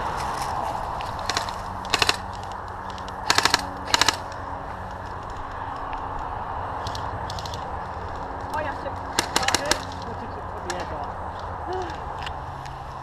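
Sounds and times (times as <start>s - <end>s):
airsoft gun bursts: 1.3s - 2.2s, 3.2s - 4.3s, 9.2s - 9.9s.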